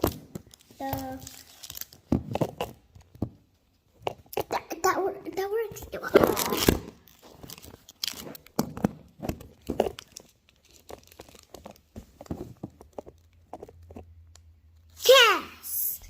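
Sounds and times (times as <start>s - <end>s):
packaging being torn and crinkled: 0.0s - 2.1s, 6.2s - 8.6s, 9.8s - 11.9s.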